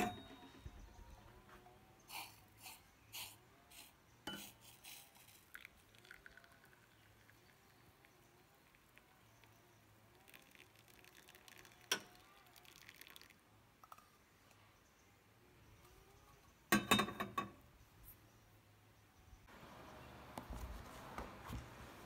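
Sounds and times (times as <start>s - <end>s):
kitchenware clinking: 0.0s - 0.7s, 16.7s - 17.6s.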